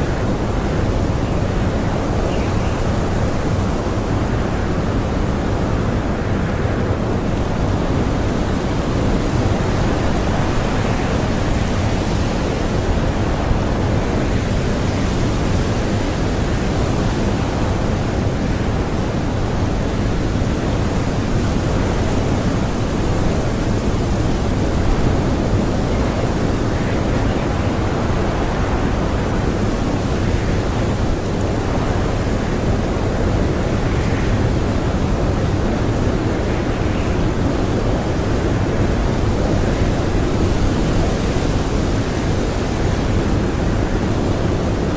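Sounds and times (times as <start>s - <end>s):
blizzard wind blowing: 0.0s - 44.9s.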